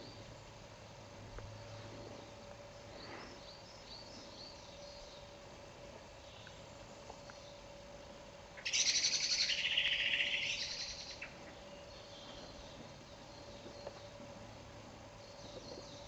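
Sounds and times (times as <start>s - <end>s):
faint steady hum: 0.0s - 16.0s
songbird trilling: 8.6s - 14.2s.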